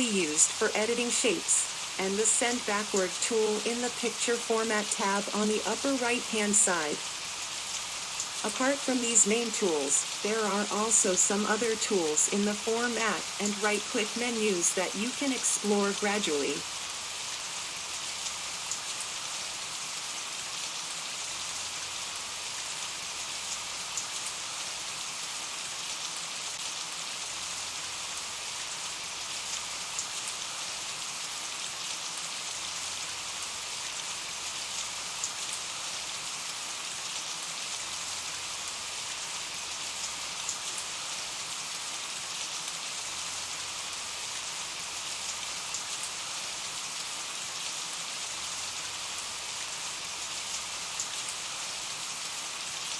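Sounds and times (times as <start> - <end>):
steady rain hiss: 0.0 - 52.9
rain drop ticks: 7.7 - 9.3.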